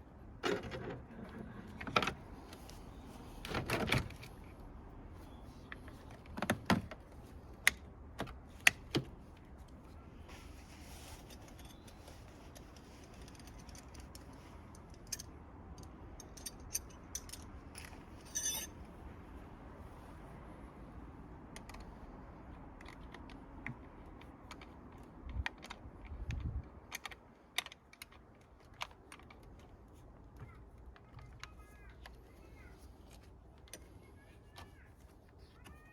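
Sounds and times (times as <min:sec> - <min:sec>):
metal parts rattling: 0:11.2 - 0:18.8.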